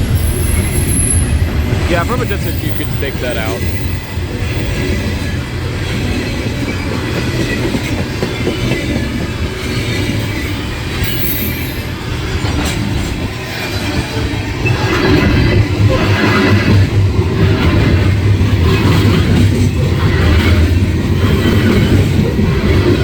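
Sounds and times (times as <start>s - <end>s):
high wheel squeal: 0.0s - 1.8s, 2.5s - 12.8s
freight train rumbling past: 0.0s - 23.0s
wheel clatter over rails: 3.6s - 23.0s.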